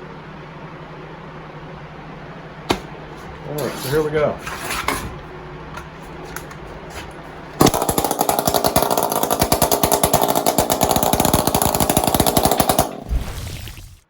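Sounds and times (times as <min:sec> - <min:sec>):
chainsaw running: 0:07.6 - 0:13.8.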